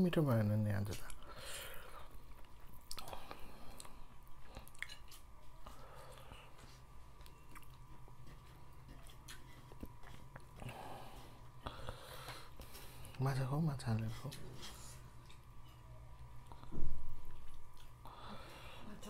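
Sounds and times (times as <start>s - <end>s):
faint steady hum: 0.0s - 19.0s
people chewing: 0.8s - 19.0s.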